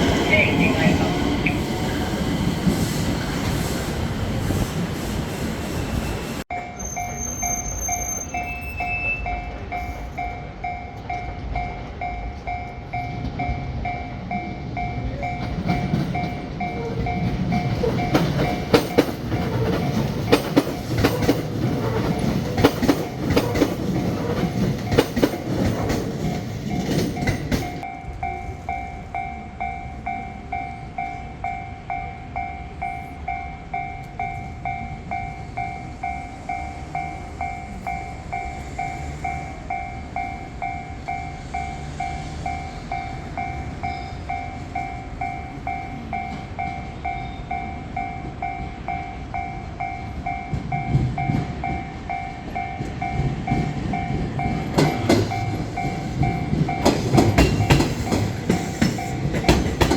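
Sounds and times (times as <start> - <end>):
train wheels clacking: 0.0 - 32.6, 33.3 - 59.9
train rumble: 0.0 - 59.9.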